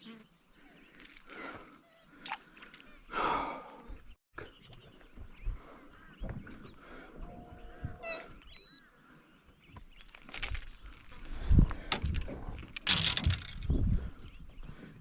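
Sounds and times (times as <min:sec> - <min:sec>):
birds chirping and whistling: 0:03.8 - 0:12.4
knocks and rustles: 0:10.0 - 0:13.9.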